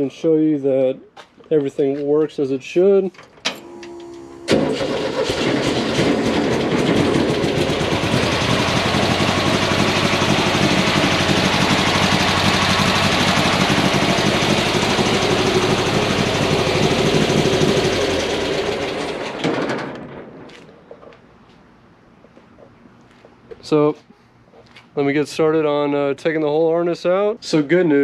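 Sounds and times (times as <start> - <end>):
car engine starting and running: 3.5 - 20.5.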